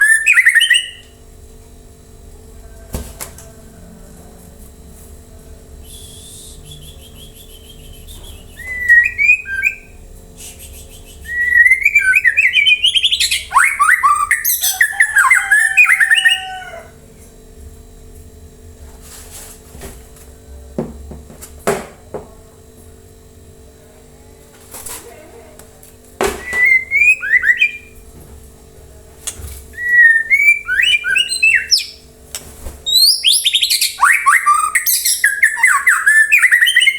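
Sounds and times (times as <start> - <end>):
songbird whistling: 0.0 - 1.1, 5.8 - 16.8, 26.4 - 28.0, 29.8 - 32.0, 32.9 - 36.9
faint steady hum: 0.0 - 36.9.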